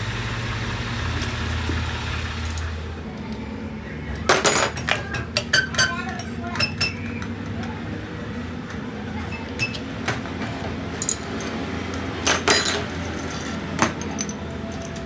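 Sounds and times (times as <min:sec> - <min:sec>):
small metal parts clinking: 0:04.3 - 0:07.1, 0:10.9 - 0:15.0.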